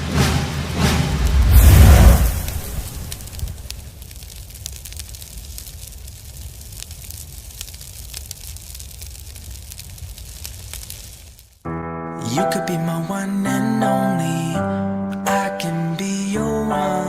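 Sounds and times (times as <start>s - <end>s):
crackling and sputtering: 1.2s - 11.6s.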